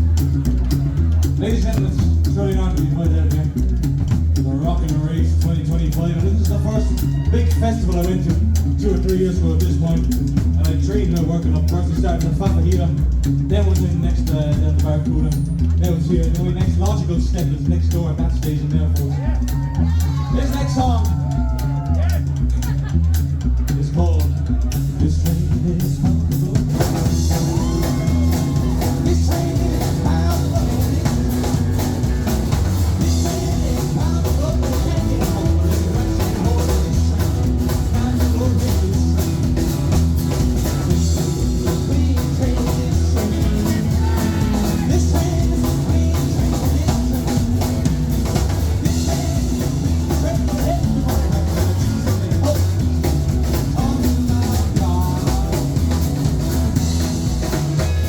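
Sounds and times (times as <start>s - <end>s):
live rock and roll band: 0.0s - 58.0s
person singing: 24.2s - 39.8s, 40.6s - 47.8s.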